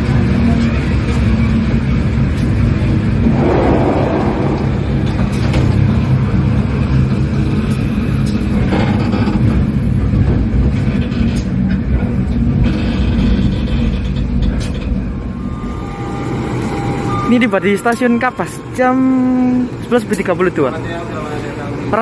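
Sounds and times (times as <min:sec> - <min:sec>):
train rumbling: 0:03.2 - 0:06.2.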